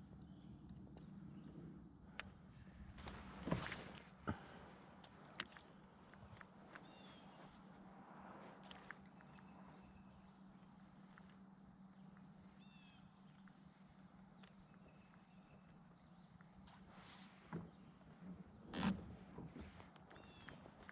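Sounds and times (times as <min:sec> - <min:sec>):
faint chirps: 0:05.4 - 0:18.0.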